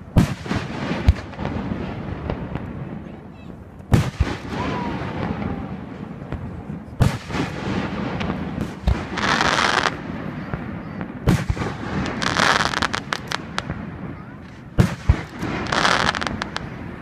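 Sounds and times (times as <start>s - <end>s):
dense hissing crackle: 0.0s - 17.0s
firework shells booming: 3.9s - 17.0s.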